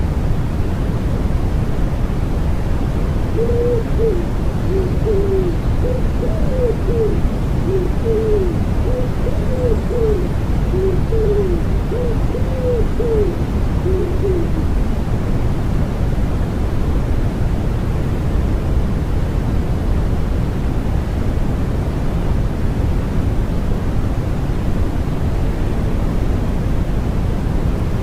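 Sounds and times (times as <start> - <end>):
bass-heavy white noise hiss: 0.0 - 28.0
wood pigeon cooing: 3.3 - 14.7.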